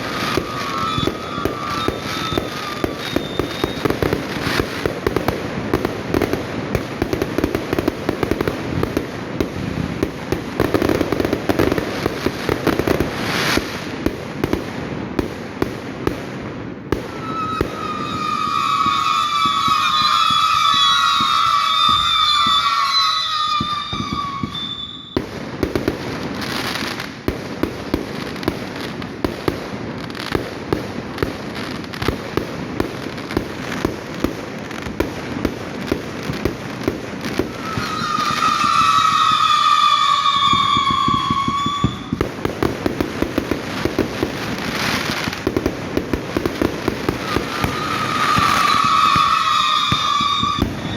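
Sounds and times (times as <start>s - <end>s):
firework whistle: 0.0s - 13.9s, 16.9s - 27.1s, 37.2s - 50.9s
fireworks crackling and banging: 0.0s - 50.9s.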